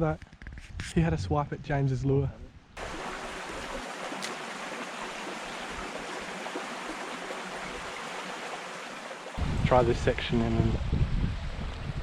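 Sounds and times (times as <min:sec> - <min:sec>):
creek water babbling over rocks: 0:02.8 - 0:09.4.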